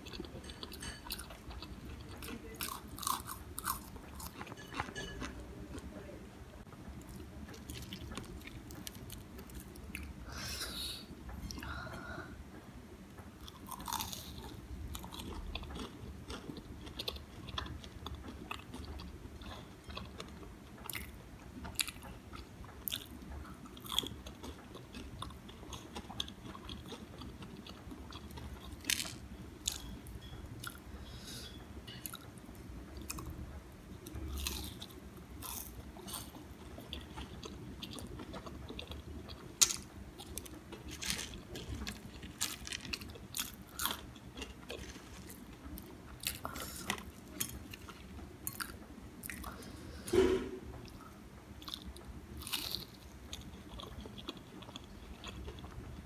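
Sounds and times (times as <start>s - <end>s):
crunchy food chewing: 0.0s - 5.8s, 13.4s - 30.8s, 34.0s - 49.7s, 51.6s - 55.8s.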